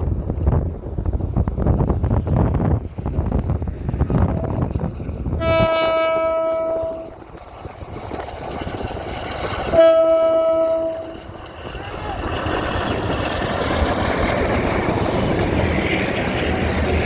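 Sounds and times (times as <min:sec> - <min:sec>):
locomotive horn blasts: 0:05.4 - 0:07.2, 0:09.7 - 0:11.3.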